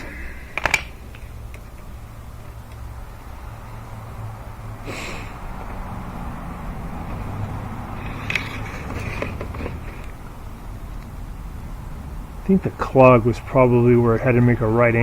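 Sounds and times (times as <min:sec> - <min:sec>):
rods knocking and scraping duct: 0:08.0 - 0:10.4.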